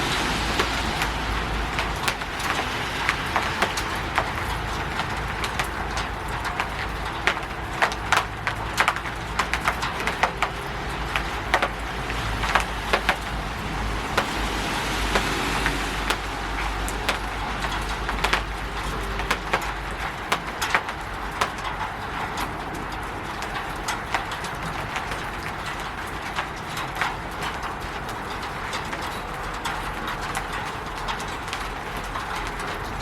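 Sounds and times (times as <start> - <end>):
rain hissing on a roof: 0.0 - 33.0
sharp drip taps: 0.4 - 22.2.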